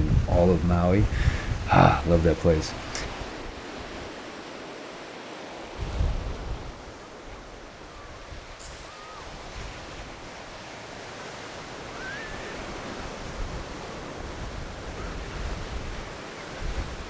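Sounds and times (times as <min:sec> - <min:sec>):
wind buffeting microphone: 0:00.0 - 0:04.2, 0:05.8 - 0:06.9
ocean surf washing onto beach: 0:00.0 - 0:17.0.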